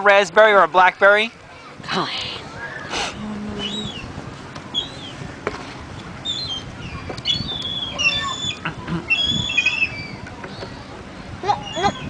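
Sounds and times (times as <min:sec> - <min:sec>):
bird chirping and whistling: 0:03.6 - 0:04.1, 0:04.7 - 0:05.2, 0:06.2 - 0:10.2.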